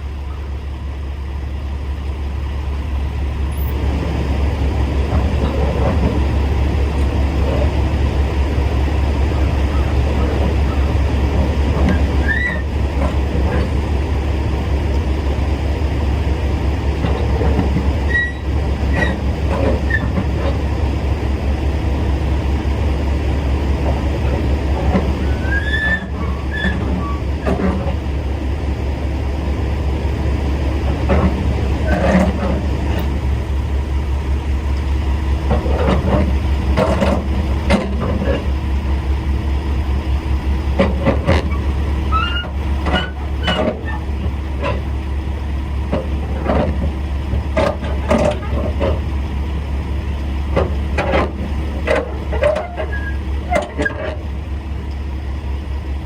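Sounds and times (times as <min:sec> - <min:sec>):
diesel truck engine idling: 0:00.0 - 0:56.0
clanks and knocks: 0:09.4 - 0:13.8, 0:17.0 - 0:20.8, 0:23.8 - 0:28.0, 0:30.8 - 0:33.2, 0:35.4 - 0:38.5, 0:40.7 - 0:45.0, 0:45.9 - 0:49.1, 0:50.5 - 0:54.2.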